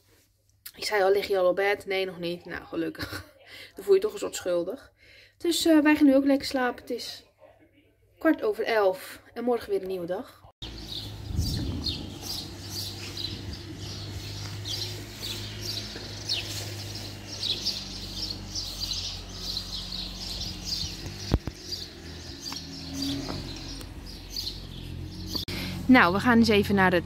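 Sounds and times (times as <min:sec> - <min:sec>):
small birds chirping: 0:10.6 - 0:26.9.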